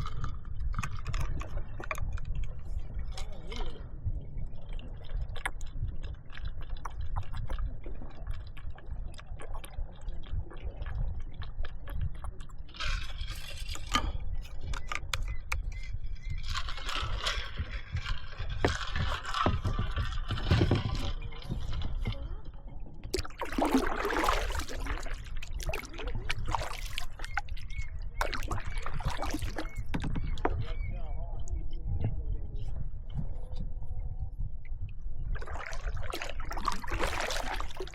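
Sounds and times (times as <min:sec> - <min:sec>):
water splashing and gurgling: 0:00.0 - 0:31.6, 0:34.7 - 0:37.9
steady low rumble: 0:17.0 - 0:37.9.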